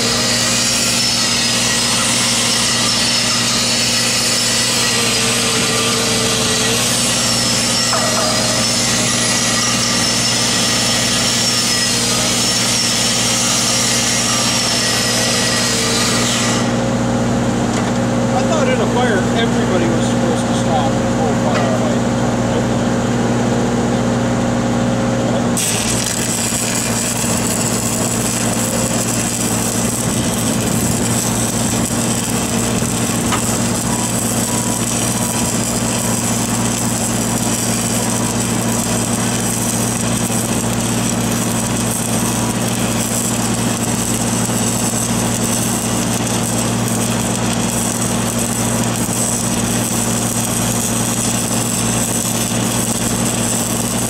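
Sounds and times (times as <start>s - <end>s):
welding arc crackling and hissing: 0.0s - 16.8s, 25.6s - 54.0s
engine humming: 25.2s - 54.0s.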